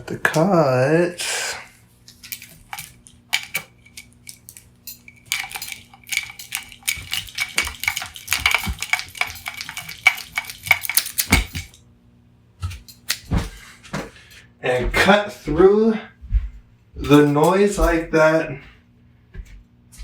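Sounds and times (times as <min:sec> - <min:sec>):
metallic clicks and rattles: 0:02.1 - 0:11.8.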